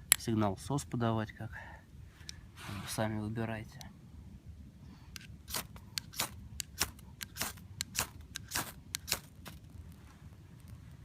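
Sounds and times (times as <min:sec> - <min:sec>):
ferro rod scraping: 0:02.6 - 0:03.2.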